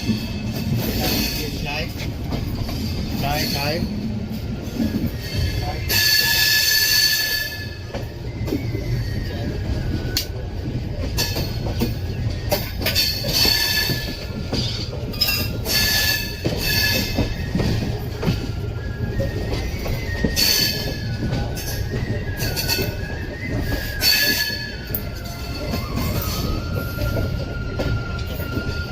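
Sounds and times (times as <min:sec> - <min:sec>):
train rumbling on track: 0:00.0 - 0:28.9
high-pitched wheel squeal: 0:04.7 - 0:10.1, 0:12.5 - 0:28.9.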